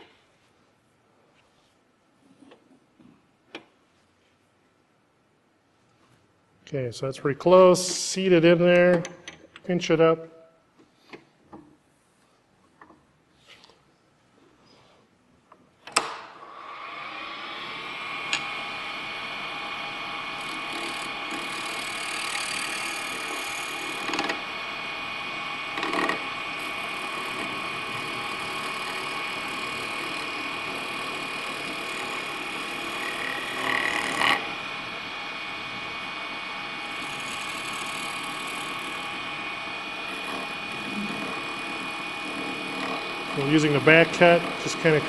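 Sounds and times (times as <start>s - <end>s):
wood lathe motor whine: 16.5s - 45.0s
turning tool scraping wood: 20.4s - 24.4s, 25.7s - 34.6s, 36.8s - 45.0s.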